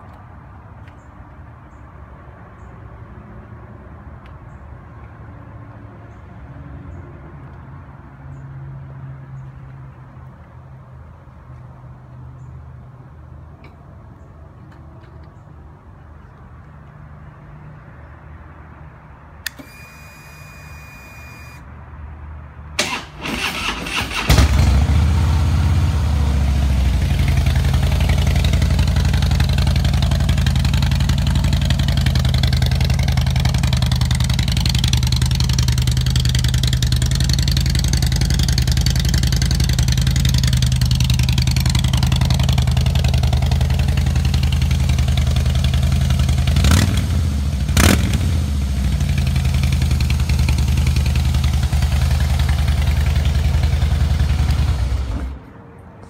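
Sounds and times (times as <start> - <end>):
electric starter cranking: 22.8 - 24.6
motorcycle engine idling: 24.6 - 46.6.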